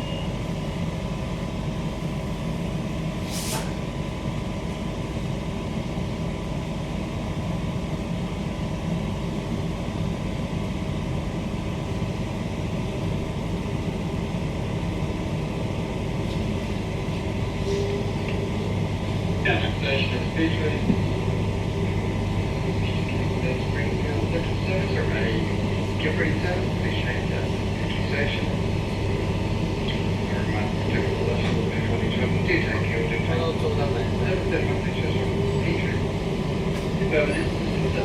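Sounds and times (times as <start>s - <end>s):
train wheels rumbling on rail: 0.0s - 38.0s
brief hiss: 3.3s - 3.8s.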